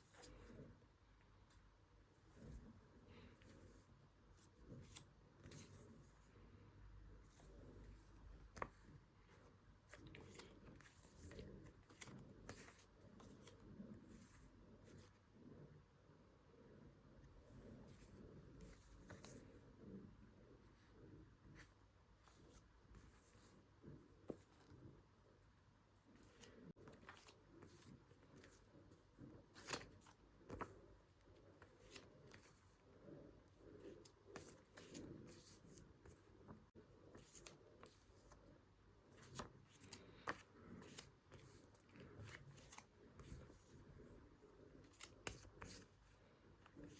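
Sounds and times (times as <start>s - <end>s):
paper rustling: 7.3s - 15.2s, 26.2s - 32.8s.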